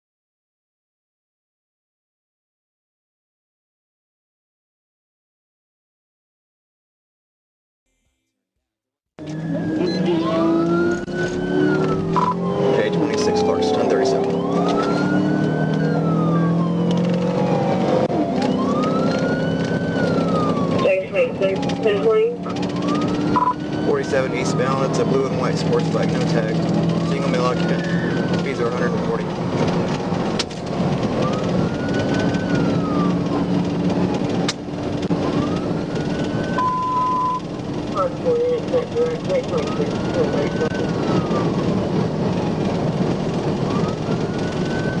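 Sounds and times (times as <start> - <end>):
car engine and tyres at speed: 9.2 - 45.0
police siren wailing: 9.2 - 45.0
short steady beep: 23.4 - 23.6, 36.6 - 37.4.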